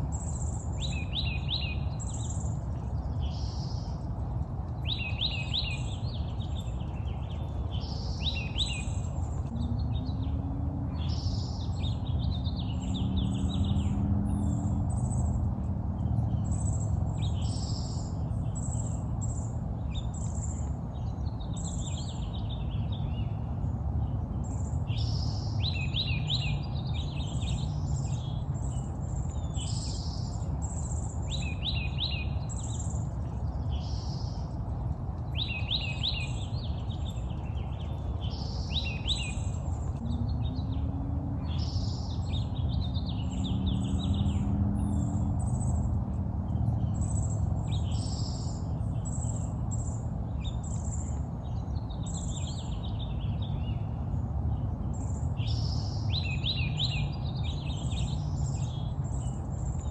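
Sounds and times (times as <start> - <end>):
songbirds chirping and singing: 0.0 - 59.9
steady low rumble: 6.0 - 21.4, 32.5 - 52.7.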